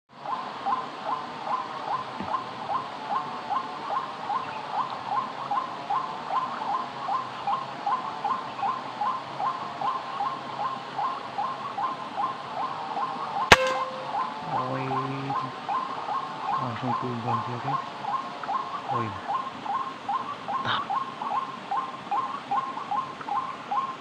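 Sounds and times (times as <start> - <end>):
gunshot crack: 13.5 - 14.3
bird calling rising notes: 13.5 - 15.6.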